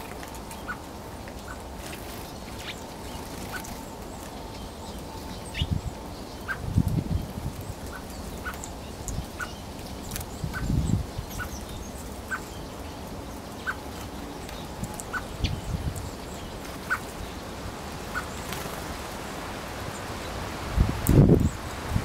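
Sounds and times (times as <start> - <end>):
outdoor background: 0.0 - 22.0
wind rumble on microphone: 2.9 - 12.6, 14.3 - 17.5, 20.1 - 22.0.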